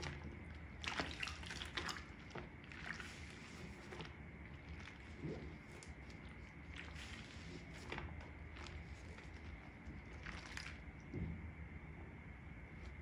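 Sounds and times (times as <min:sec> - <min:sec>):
wet sponge squelching: 0:00.0 - 0:11.0.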